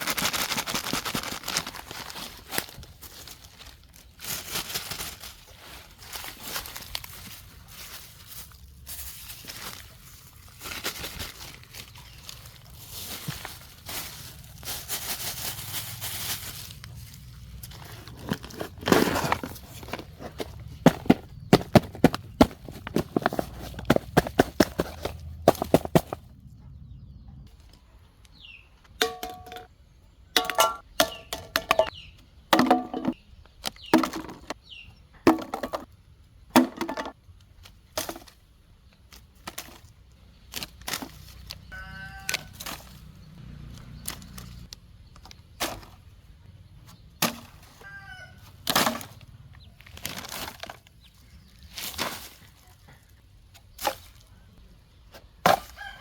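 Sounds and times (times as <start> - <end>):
sharp knocks and crackles: 17.7 - 26.3.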